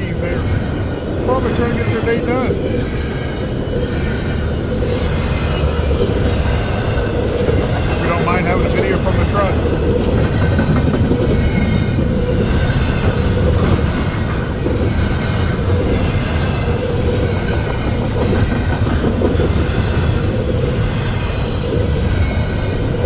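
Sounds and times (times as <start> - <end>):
freight train wheels rumbling: 0.0 - 23.0.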